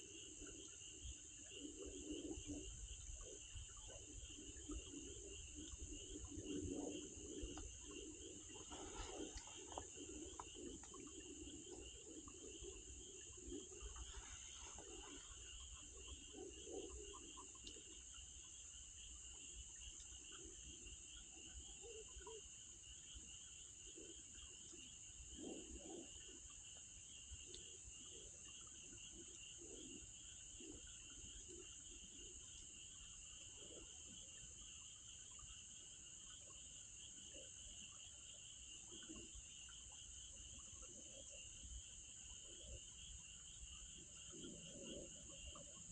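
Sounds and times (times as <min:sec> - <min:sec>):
insects chirping: 0:00.0 - 0:45.9
soft low rustles: 0:06.6 - 0:11.7.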